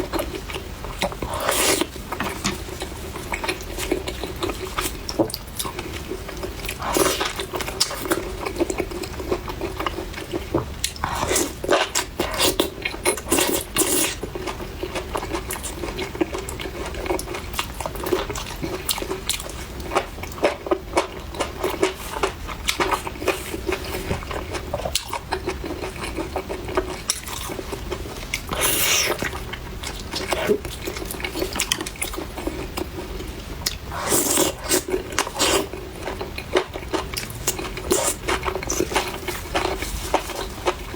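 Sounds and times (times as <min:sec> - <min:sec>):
wet chewing and biting: 0:33.6 - 0:40.9.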